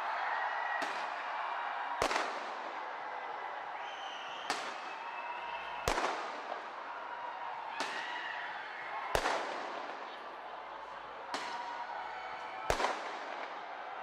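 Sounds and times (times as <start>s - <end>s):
fireworks bangs: 0.8s - 7.0s, 7.7s - 8.3s, 9.0s - 10.3s, 11.2s - 11.8s, 12.7s - 14.0s.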